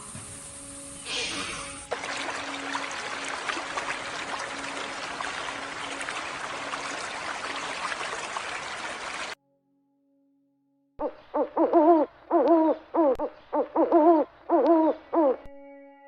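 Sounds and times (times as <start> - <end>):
stream babbling: 1.6 - 9.4.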